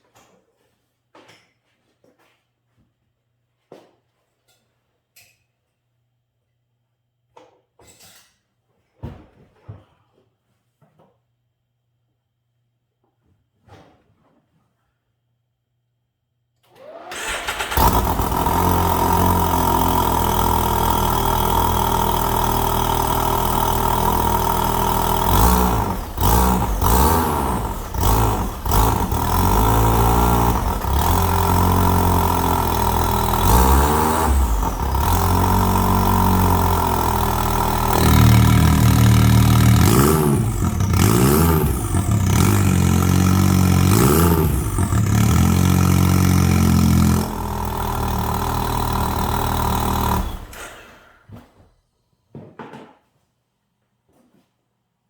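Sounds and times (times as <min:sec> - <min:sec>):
engine starting and idling: 0:16.7 - 0:51.2
engine revving: 0:17.0 - 0:51.0.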